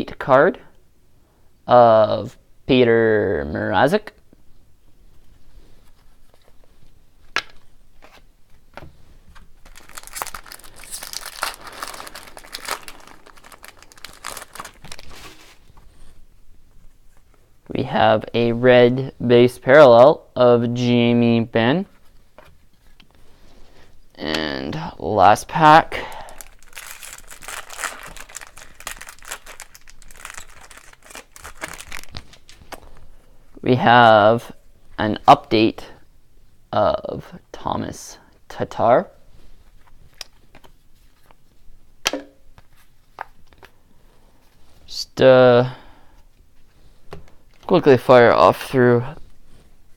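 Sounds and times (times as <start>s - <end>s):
wrapper tearing and crinkling: 9.6s - 15.6s, 26.0s - 33.0s.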